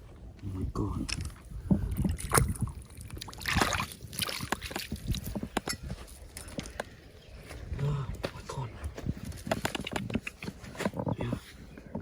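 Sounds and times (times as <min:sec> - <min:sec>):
water sloshing and splashing: 0:02.0 - 0:05.4
stones clicking and knocking: 0:08.1 - 0:12.0.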